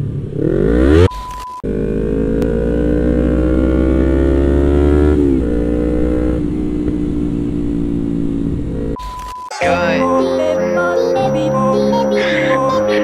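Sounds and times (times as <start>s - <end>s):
motorcycle engine accelerating: 0.0s - 9.0s.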